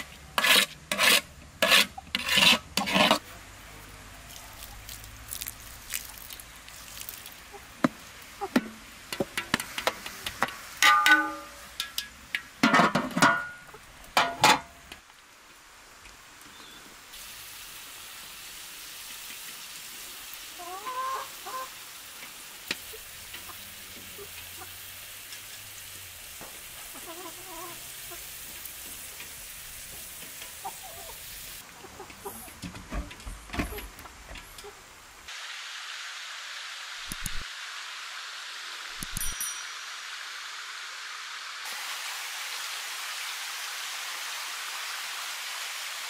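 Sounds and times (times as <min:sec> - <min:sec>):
food frying with sizzle: 0:04.2 - 0:12.6, 0:14.8 - 0:31.7, 0:35.3 - 0:46.0
chickens clucking: 0:20.6 - 0:21.8, 0:22.7 - 0:24.8, 0:26.8 - 0:28.4, 0:30.2 - 0:34.8.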